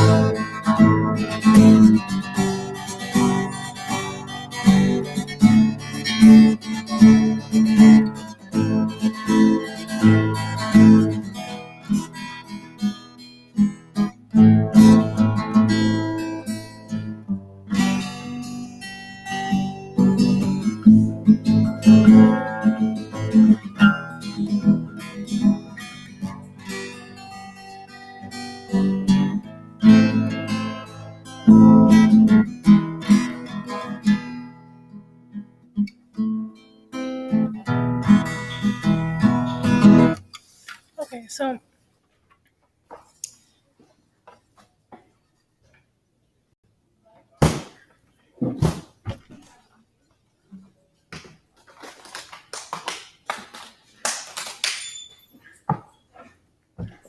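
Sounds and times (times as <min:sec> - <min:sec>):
acoustic guitar strumming and picking: 0:00.0 - 0:41.6.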